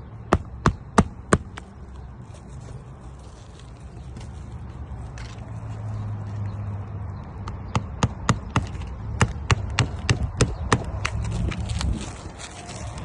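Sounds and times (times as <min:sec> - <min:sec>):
hammer striking roofing nails: 0:07.7 - 0:11.2.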